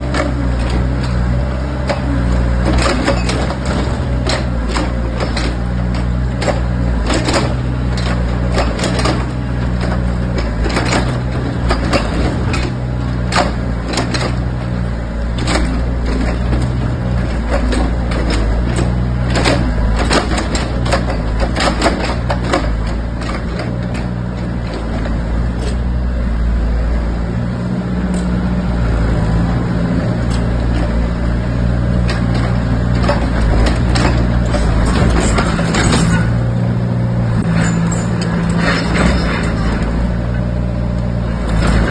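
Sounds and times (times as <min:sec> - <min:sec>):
sharp knocks and clanks: 0:00.0 - 0:25.8, 0:31.7 - 0:36.7, 0:37.4 - 0:40.5
diesel engine running: 0:00.0 - 0:41.9.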